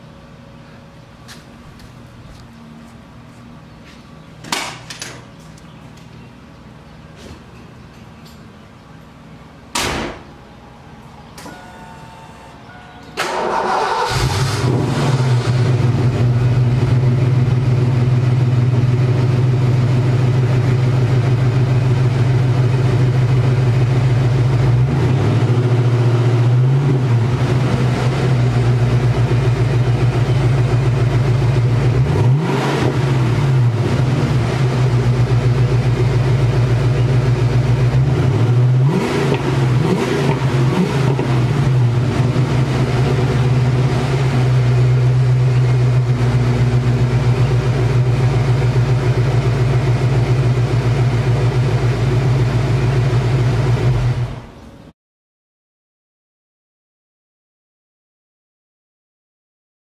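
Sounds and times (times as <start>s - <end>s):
car engine starting and idling: 9.6s - 54.8s
car door slamming: 9.7s - 10.3s
engine revving: 13.2s - 18.1s, 30.5s - 35.9s, 37.6s - 50.6s.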